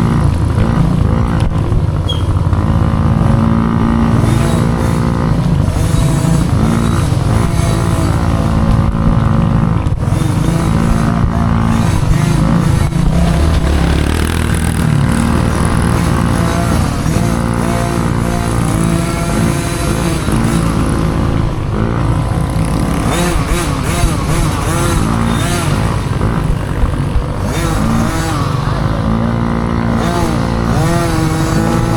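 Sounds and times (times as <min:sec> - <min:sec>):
dirt bike engine revving: 0:00.0 - 0:31.9.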